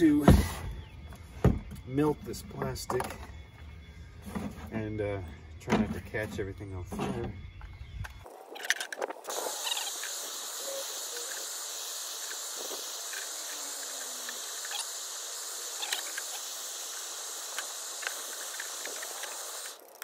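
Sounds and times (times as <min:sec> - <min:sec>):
torch flame hissing: 0:08.2 - 0:20.0.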